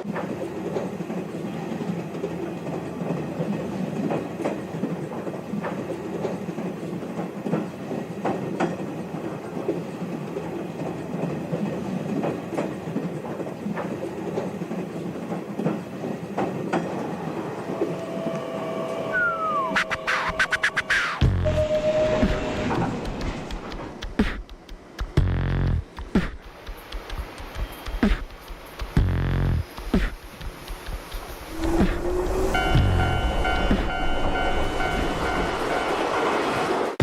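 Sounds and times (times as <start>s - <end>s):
train rumbling on rails: 0.0s - 37.0s
falling sweep: 17.2s - 25.0s
steady tone: 30.8s - 36.0s.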